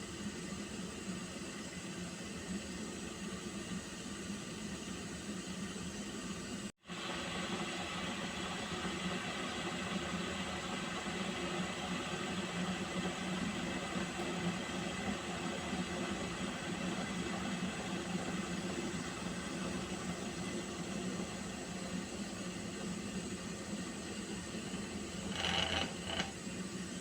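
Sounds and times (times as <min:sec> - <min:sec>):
water heating in a pot: 0:00.0 - 0:27.0.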